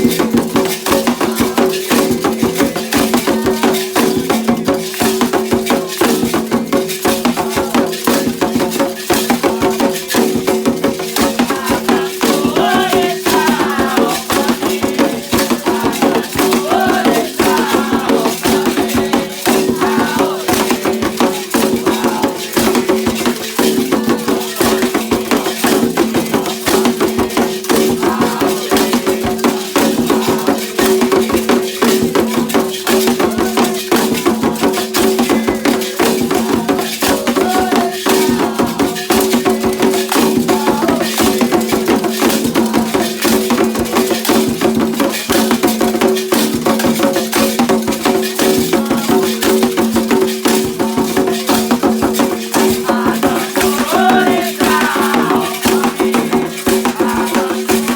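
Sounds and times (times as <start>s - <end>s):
percussion with rattles: 0.0s - 57.9s
voices: 11.3s - 26.9s, 35.3s - 39.7s, 40.4s - 41.2s, 52.5s - 57.9s.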